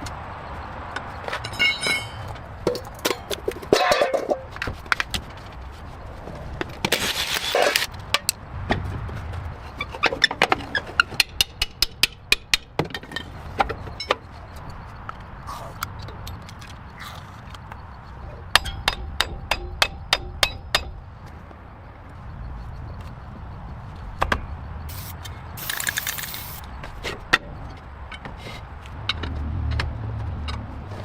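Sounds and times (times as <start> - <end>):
hand tools tapping and clicking: 10.0 - 16.9, 18.5 - 21.0, 24.2 - 26.6
short hissing burst: 24.9 - 26.6.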